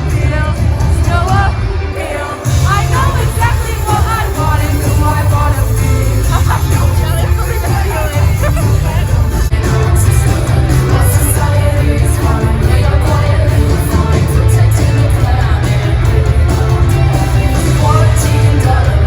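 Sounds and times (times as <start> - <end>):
live pop music with singing: 0.0 - 19.0.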